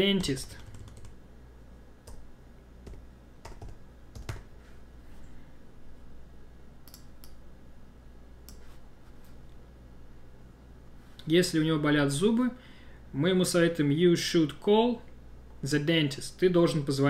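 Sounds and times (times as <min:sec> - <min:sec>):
mouse clicks: 0:06.8 - 0:07.4.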